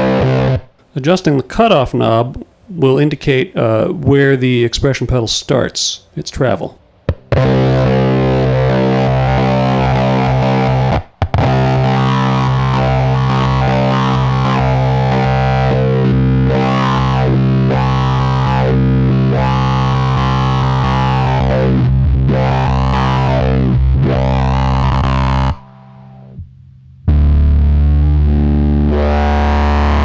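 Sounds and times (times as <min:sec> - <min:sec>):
fuzz electric guitar with wah sweeps: 0:00.0 - 0:00.6, 0:07.2 - 0:26.4, 0:27.1 - 0:30.0.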